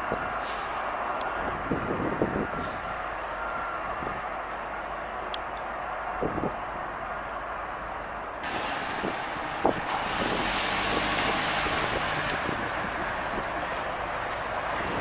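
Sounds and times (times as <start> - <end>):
vehicle passing: 8.4 - 14.1.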